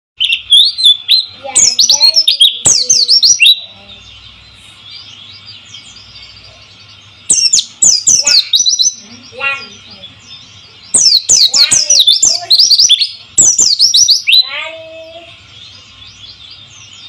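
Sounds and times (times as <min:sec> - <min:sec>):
bird singing high chirps: 0:00.2 - 0:17.0
faint bird twittering: 0:00.2 - 0:17.0.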